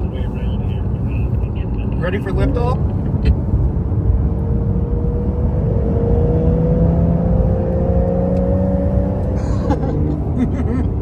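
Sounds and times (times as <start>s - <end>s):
road and tyre rumble: 0.0s - 11.0s
sports car engine at full throttle: 0.0s - 11.0s.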